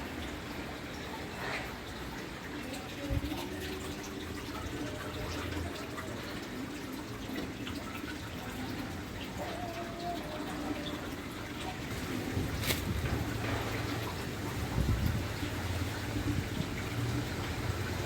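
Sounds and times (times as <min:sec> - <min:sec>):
hiss of wind and rain: 0:11.8 - 0:18.0.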